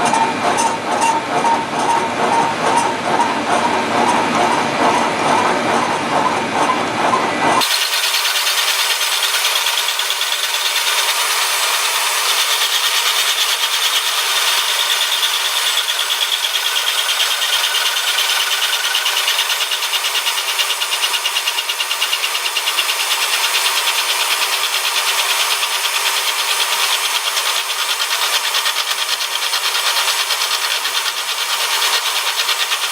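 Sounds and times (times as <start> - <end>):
milling machine cutting metal: 7.6 - 32.9.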